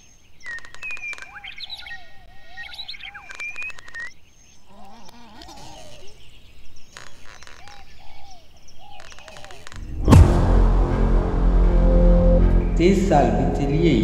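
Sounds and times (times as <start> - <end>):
birds chirping and calling: 0.0 - 9.7.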